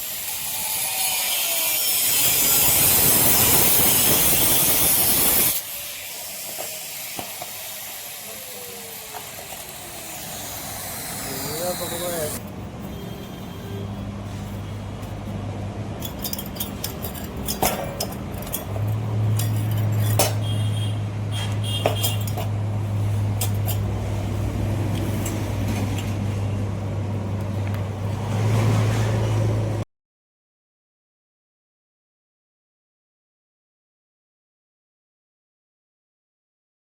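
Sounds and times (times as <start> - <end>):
metallic clinks and clicks: 16.0 - 20.5, 21.8 - 22.6.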